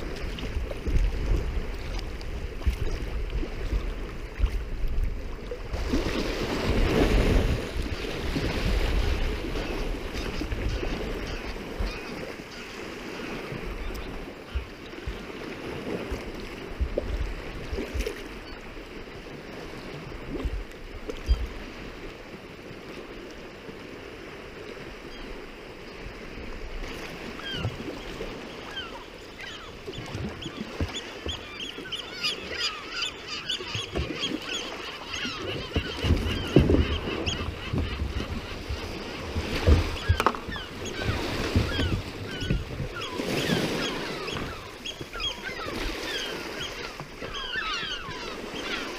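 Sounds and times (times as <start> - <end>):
water around a kayak: 0.0 - 48.9
flock of birds chirping: 40.0 - 48.9.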